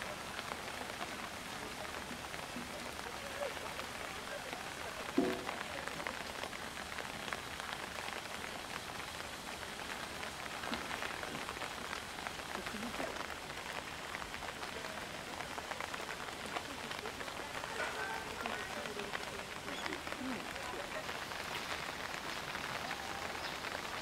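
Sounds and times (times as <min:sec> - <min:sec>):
heavy rain on rock and water: 0:00.0 - 0:24.0.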